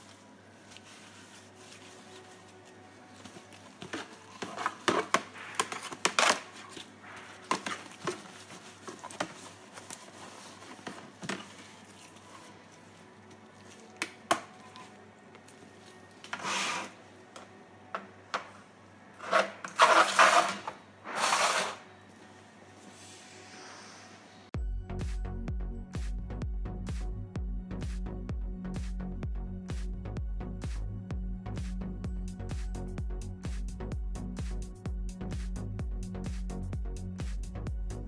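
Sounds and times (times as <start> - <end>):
plastic scraping rustles: 0.0 - 12.8, 19.2 - 21.8.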